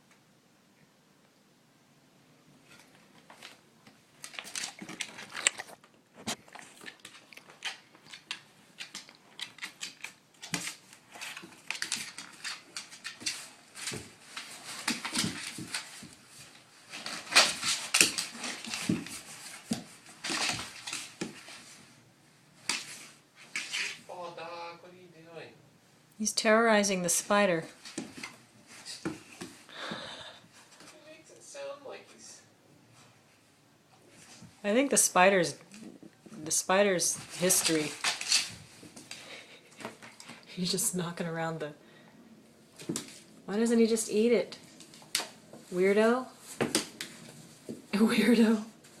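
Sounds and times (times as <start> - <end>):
dog claws scrabbling on hard floor: 4.2 - 21.8, 37.2 - 39.2, 46.4 - 47.9.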